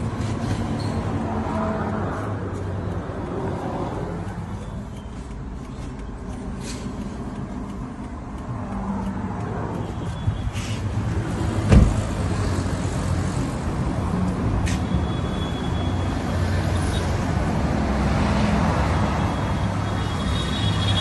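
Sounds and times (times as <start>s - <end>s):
car door shutting: 11.6s - 12.3s.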